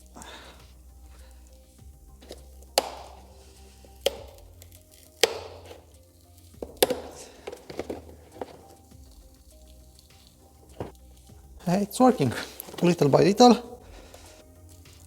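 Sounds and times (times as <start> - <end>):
plastic bracket cracking and snapping: 2.2 - 3.3, 4.0 - 6.0, 6.6 - 9.2.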